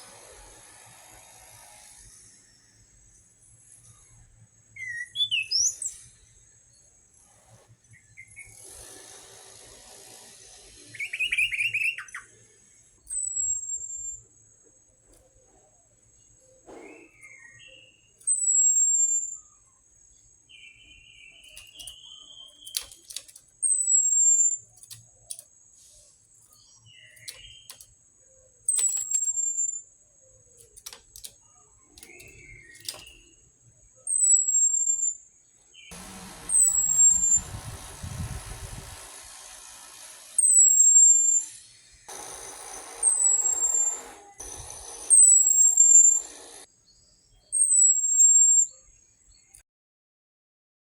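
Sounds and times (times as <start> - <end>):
bird chirps and trills: 4.8 - 6.0, 10.9 - 14.3, 15.3 - 38.2, 40.4 - 46.7, 47.3 - 49.6
bird singing falling whistle: 4.8 - 6.1, 10.9 - 12.4, 13.0 - 14.3, 15.3 - 25.4, 26.5 - 38.4, 40.4 - 46.7, 47.4 - 49.0.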